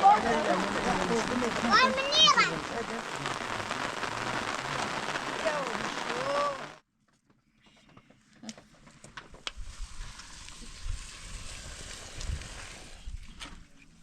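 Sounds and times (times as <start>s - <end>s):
rain hissing: 0.0s - 6.8s, 9.6s - 13.2s.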